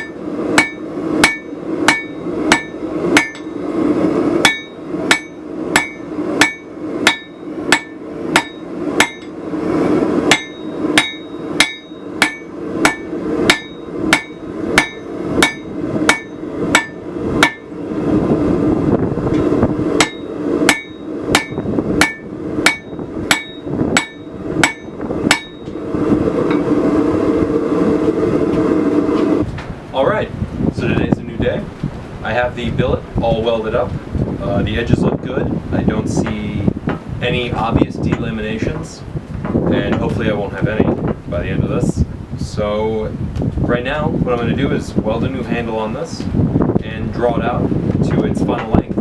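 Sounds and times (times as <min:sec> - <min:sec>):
hammer striking steel on anvil: 0:00.0 - 0:03.6, 0:04.4 - 0:09.4, 0:10.3 - 0:17.8, 0:19.3 - 0:25.8
steady forge roar: 0:00.0 - 0:49.0.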